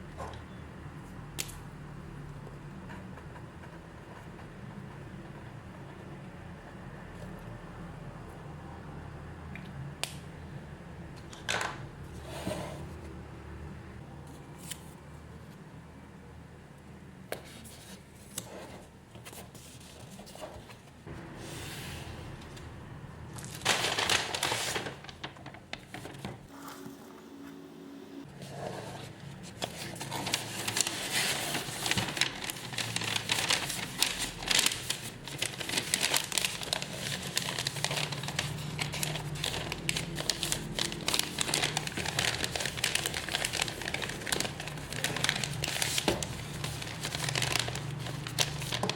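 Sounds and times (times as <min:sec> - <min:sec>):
plastic packaging crinkling: 0:23.3 - 0:27.2, 0:29.8 - 0:48.9.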